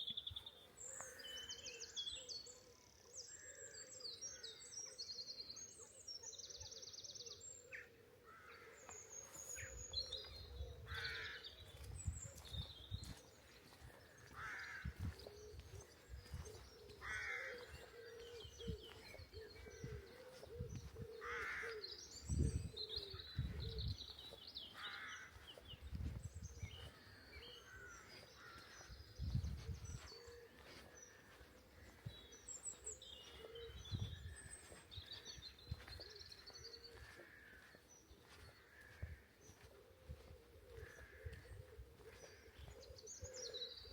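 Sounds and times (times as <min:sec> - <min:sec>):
songbirds singing: 0:00.0 - 0:43.9
crow cawing: 0:14.3 - 0:15.0, 0:17.0 - 0:18.2, 0:21.1 - 0:21.8, 0:24.8 - 0:25.4.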